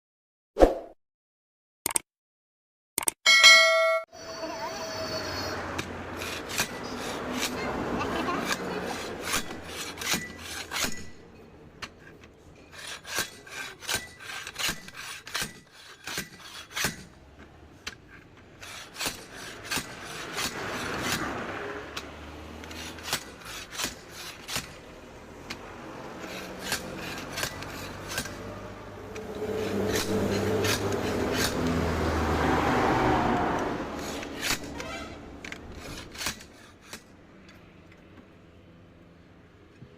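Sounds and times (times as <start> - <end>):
scraping and rubbing: 26.0 - 31.8, 33.9 - 37.1.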